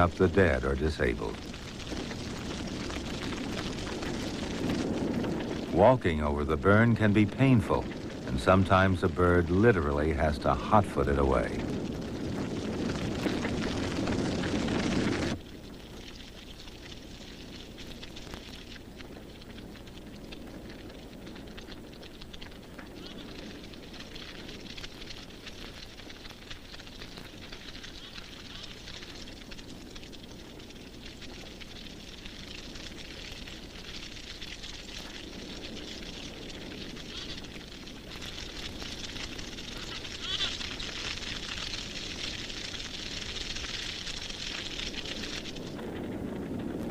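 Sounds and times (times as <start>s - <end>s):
grass fire crackling: 0.0s - 46.9s
low rush of flames: 0.0s - 46.9s.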